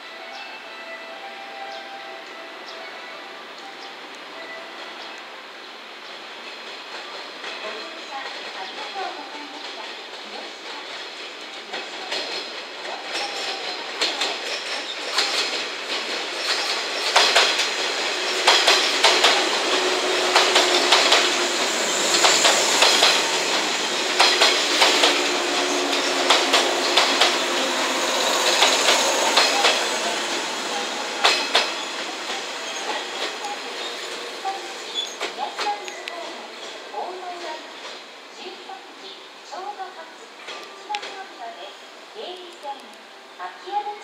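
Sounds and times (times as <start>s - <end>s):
electric train rolling past: 0.0s - 44.0s
wheels clacking over rail joints: 6.4s - 38.2s.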